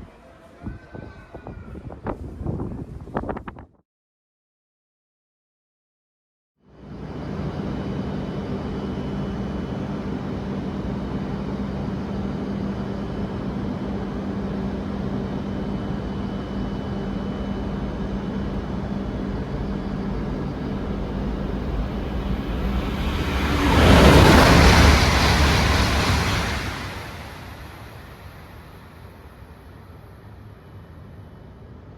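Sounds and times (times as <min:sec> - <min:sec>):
train rumble: 0:06.8 - 0:31.9
rush of air and wheel noise: 0:14.0 - 0:30.0.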